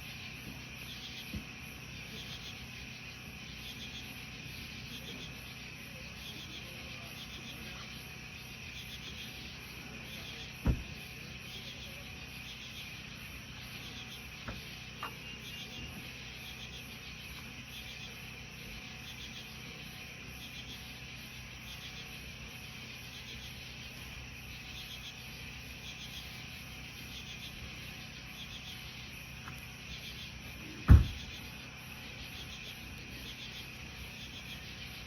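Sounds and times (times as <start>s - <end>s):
insects chirping: 0.0s - 35.0s
sharp knock: 10.6s - 10.9s, 30.9s - 31.3s.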